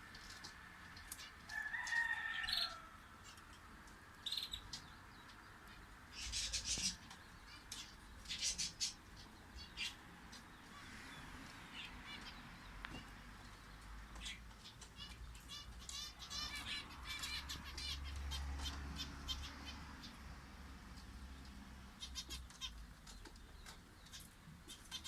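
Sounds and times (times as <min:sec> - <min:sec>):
songbirds chirping: 0:00.0 - 0:25.0
rooster crowing: 0:01.5 - 0:03.1.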